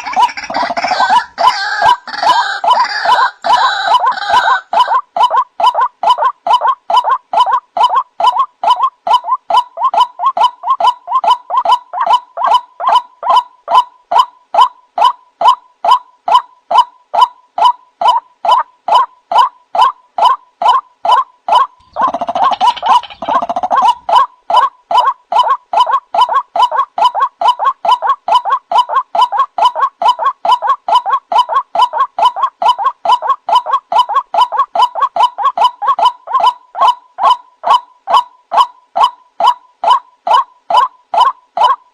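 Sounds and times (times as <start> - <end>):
waterhen croaking calls: 0.0 - 41.9.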